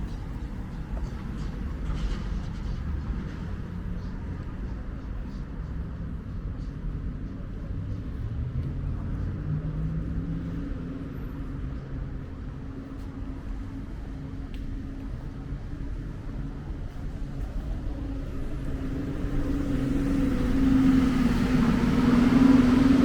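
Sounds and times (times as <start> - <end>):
vehicle engine running: 18.3 - 23.0.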